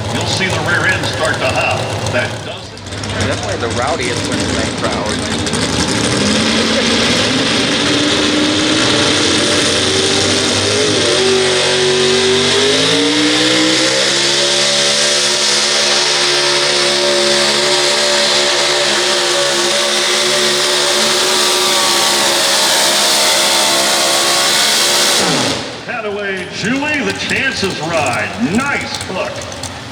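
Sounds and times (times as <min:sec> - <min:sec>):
truck engine revving: 0:00.0 - 0:29.9.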